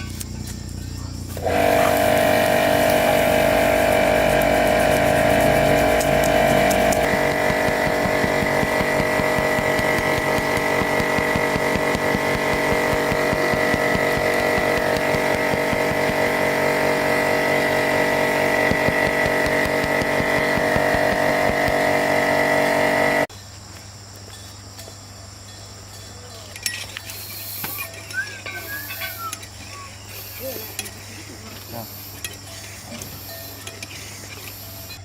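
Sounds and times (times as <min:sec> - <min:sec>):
machine whining and pulsing: 0:00.0 - 0:23.3.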